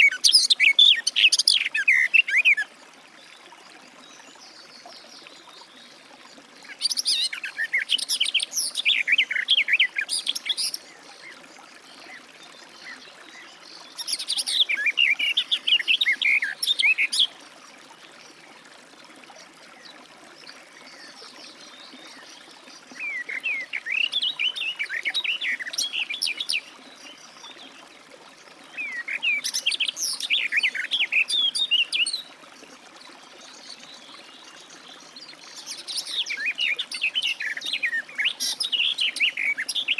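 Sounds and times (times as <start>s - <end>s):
garden warbler singing: 6.7s - 17.4s.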